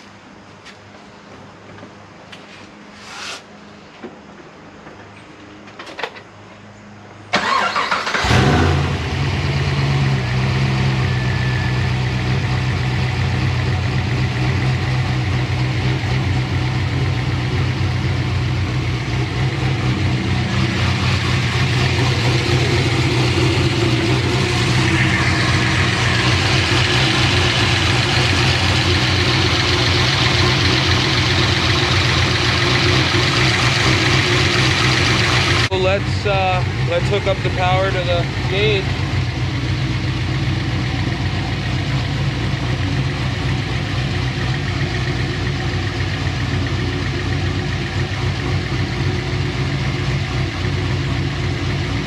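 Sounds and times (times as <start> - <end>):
car engine cranking: 7.3 - 9.1
car engine idling: 7.3 - 52.0.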